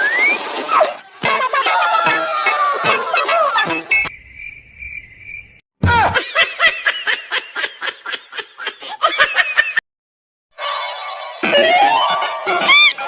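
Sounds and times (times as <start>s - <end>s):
crickets chirping effect: 3.9s - 5.6s
sped-up giggling laughter: 6.2s - 9.8s.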